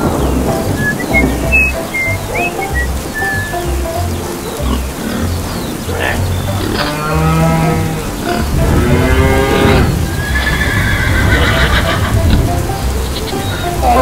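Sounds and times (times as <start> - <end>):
background music with low beat: 0.0 - 10.2, 11.9 - 14.0
farm animal calls: 0.0 - 14.0
horse whinny: 9.4 - 12.1.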